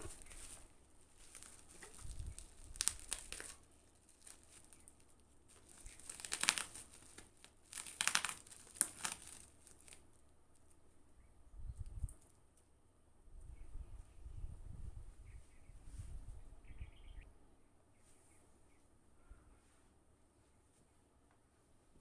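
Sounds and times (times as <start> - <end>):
packaging tearing: 0.0 - 10.0
packaging crinkling and rustling: 0.0 - 10.7.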